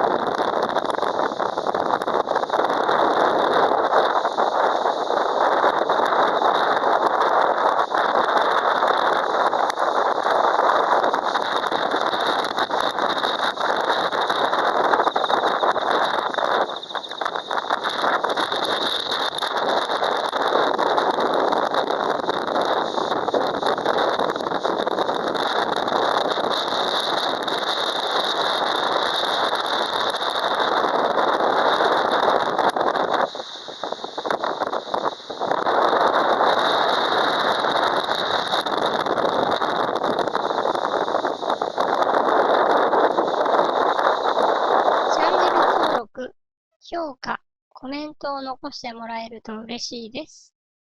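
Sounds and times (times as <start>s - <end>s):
dense crackle: 0.0s - 46.0s
wind and rain hiss: 0.0s - 46.0s.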